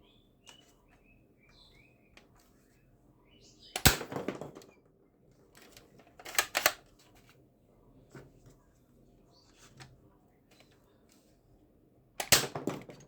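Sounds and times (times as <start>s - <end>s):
plastic toy gun clicks: 3.8s - 4.1s, 5.6s - 6.8s, 12.2s - 12.9s.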